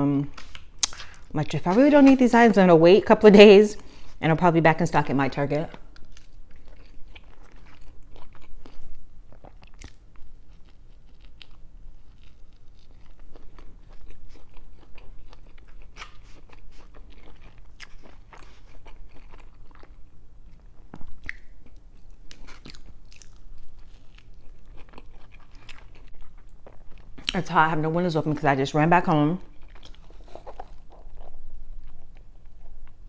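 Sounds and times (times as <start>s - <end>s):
chewing crunchy food: 5.7s - 27.9s, 29.4s - 33.0s.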